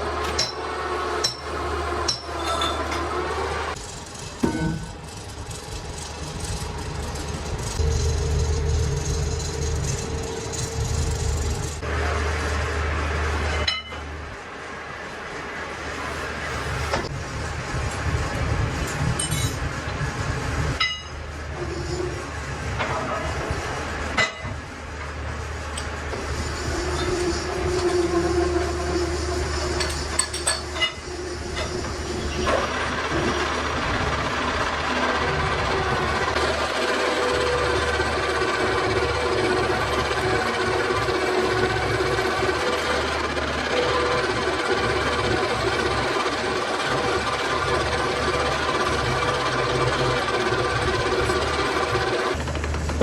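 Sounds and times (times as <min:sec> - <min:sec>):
workshop machinery hum: 0:00.0 - 0:53.0
dense grinding noise: 0:03.4 - 0:12.6.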